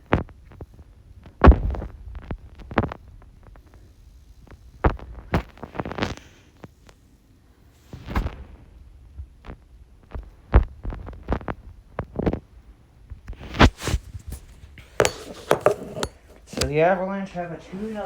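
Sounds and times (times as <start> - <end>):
plastic hockey sticks hitting puck: 15.0 - 16.8.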